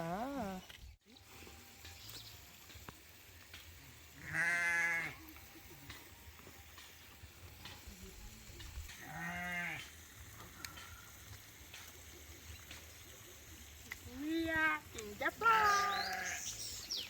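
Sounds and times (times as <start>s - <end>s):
sheep bleating: 4.2s - 5.2s, 9.0s - 9.9s.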